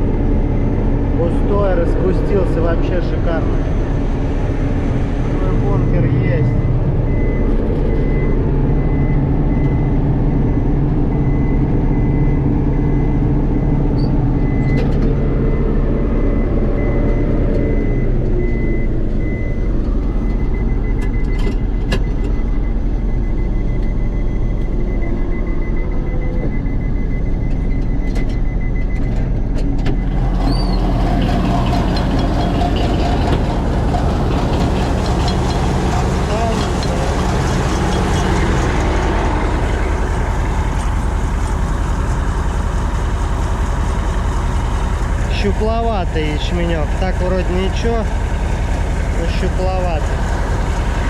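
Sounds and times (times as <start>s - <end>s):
combine harvester engine drone: 0.0s - 51.0s.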